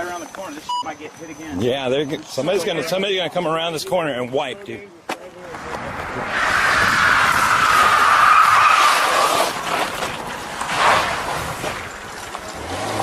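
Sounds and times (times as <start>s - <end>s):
car tyres squealing: 5.6s - 13.0s.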